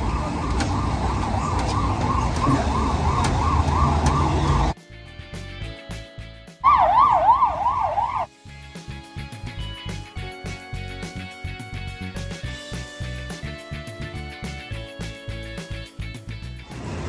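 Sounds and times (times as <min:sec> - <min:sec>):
siren yelping: 0:00.0 - 0:04.8, 0:06.6 - 0:08.3
street traffic noise: 0:00.0 - 0:04.8, 0:06.6 - 0:08.3, 0:16.7 - 0:17.0
background music: 0:00.0 - 0:17.0.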